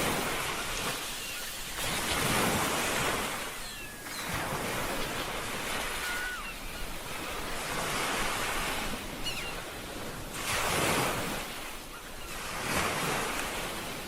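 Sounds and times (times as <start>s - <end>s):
ocean surf breaking: 0.0s - 14.0s
faint high gliding calls: 0.6s - 7.6s.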